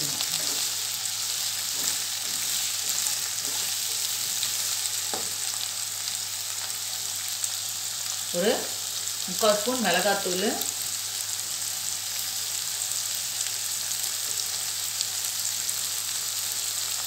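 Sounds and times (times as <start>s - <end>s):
vegetables sizzling in oil: 0.0s - 17.0s
spatula scraping pan: 0.1s - 5.2s.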